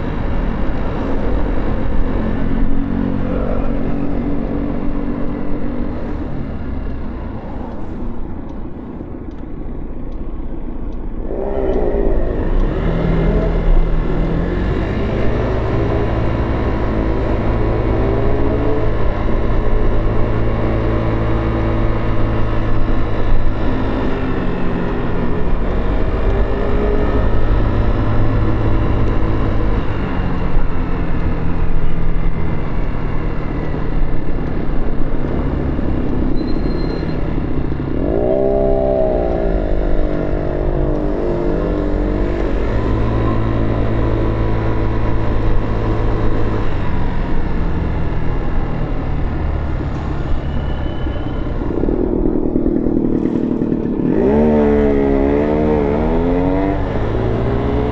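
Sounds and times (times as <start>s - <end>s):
motorcycle engine accelerating: 11.1s - 57.9s.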